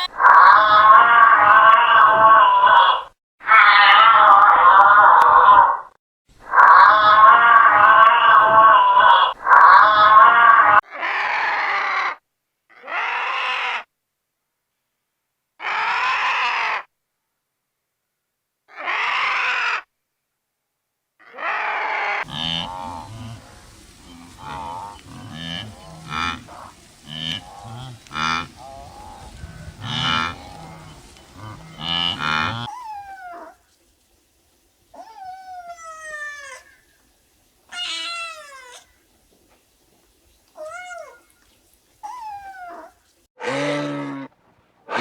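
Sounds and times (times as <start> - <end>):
farm animal calls: 0.0 - 5.0, 21.2 - 33.7, 34.5 - 45.0
cow mooing: 22.2 - 32.7, 43.4 - 45.0
cat meowing: 32.7 - 33.6, 35.0 - 36.8, 37.7 - 39.0, 40.6 - 43.0.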